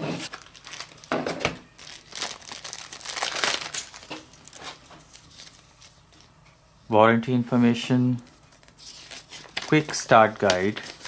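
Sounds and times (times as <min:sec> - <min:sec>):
packaging crinkling: 0:00.2 - 0:06.0, 0:08.3 - 0:11.0.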